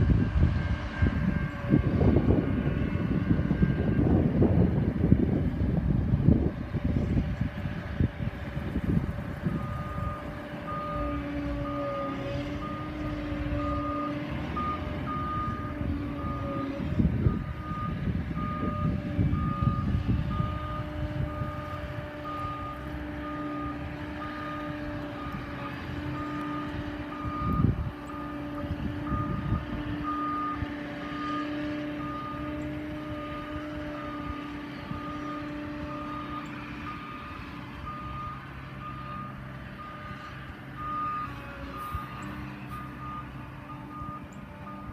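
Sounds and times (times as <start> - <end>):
vehicle engine running: 0.0 - 44.9
reversing alarm beeping: 9.4 - 44.9.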